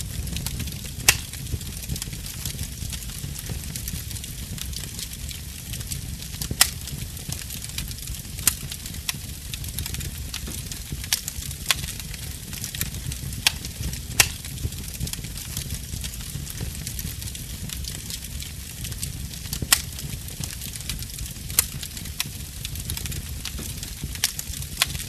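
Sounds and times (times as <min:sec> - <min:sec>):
fire crackles and pops: 0:00.0 - 0:25.0
wood fire burning: 0:00.0 - 0:25.0.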